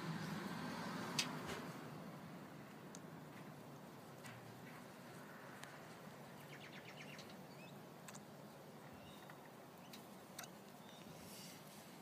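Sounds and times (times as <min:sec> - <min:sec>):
distant bird chirps and ticks: 0:05.5 - 0:11.2.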